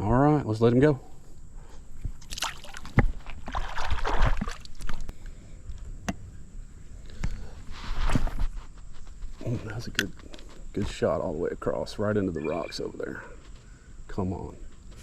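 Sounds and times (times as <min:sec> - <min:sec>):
water splashing: 0:02.2 - 0:05.1.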